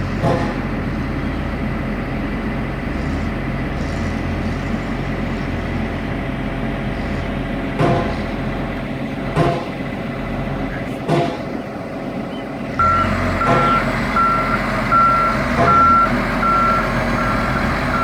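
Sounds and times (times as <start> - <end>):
machine engine running: 0.0 - 18.0
clunk: 0.2 - 0.7, 7.8 - 8.4, 9.3 - 9.8, 11.1 - 11.6, 13.4 - 13.8, 15.5 - 16.1.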